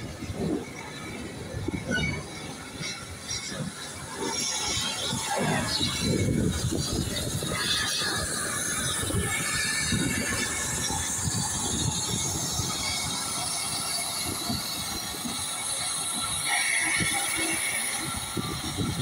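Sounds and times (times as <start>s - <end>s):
wind buffeting microphone: 0.0s - 19.0s
wheel squeal: 0.1s - 19.0s.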